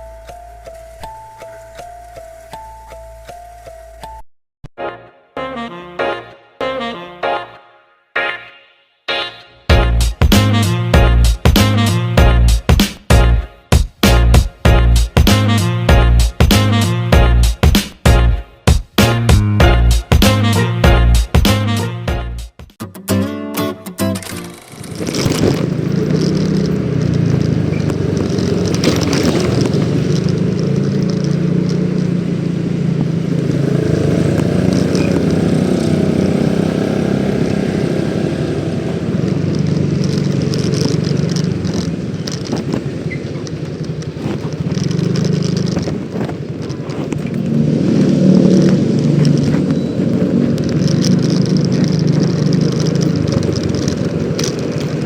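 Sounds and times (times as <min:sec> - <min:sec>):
scooter engine running: 0:24.2 - 0:55.0
wind and road noise: 0:24.2 - 0:55.0.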